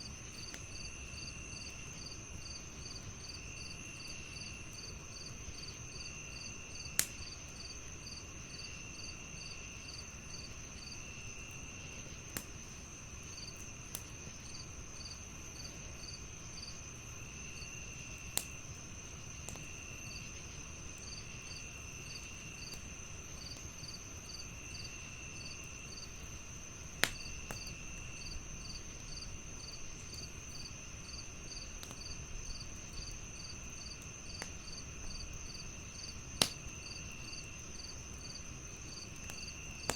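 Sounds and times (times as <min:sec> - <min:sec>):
crickets chirping: 0:00.0 - 0:39.9
log fire crackling: 0:00.0 - 0:39.9.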